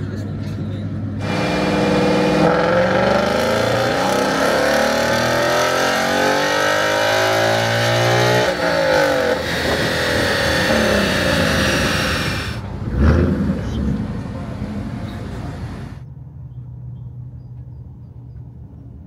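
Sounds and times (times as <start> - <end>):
car engine revving hard: 1.2 - 14.1.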